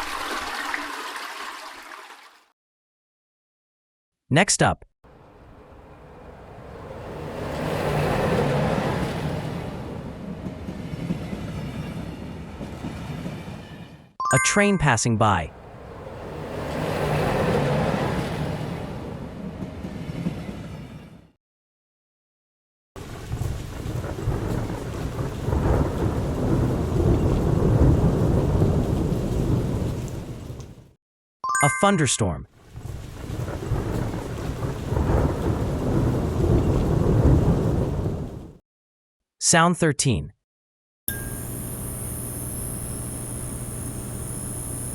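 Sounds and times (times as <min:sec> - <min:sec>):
train rumbling past: 0:05.1 - 0:14.2, 0:15.5 - 0:21.4, 0:23.9 - 0:30.6, 0:33.3 - 0:38.6
steady rain: 0:23.0 - 0:30.7, 0:33.2 - 0:38.4.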